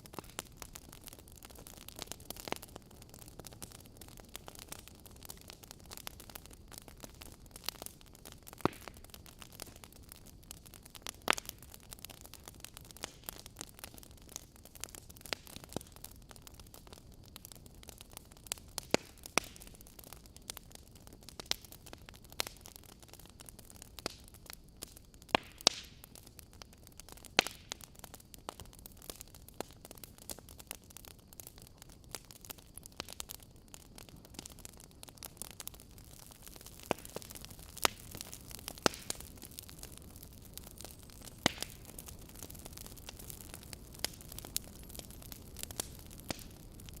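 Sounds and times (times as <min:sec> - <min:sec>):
fire hissing: 0:00.0 - 0:47.0
wood fire crackling: 0:00.0 - 0:47.0.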